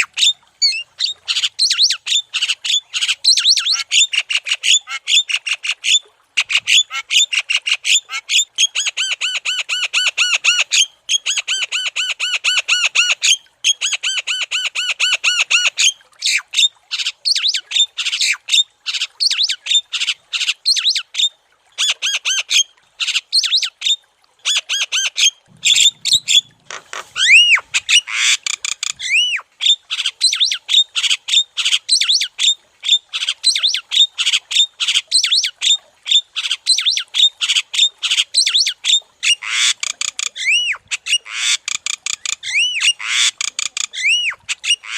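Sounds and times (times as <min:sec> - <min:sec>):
myna harsh squawks: 0:25.6 - 0:28.4
whistled bird notes: 0:27.2 - 0:28.0.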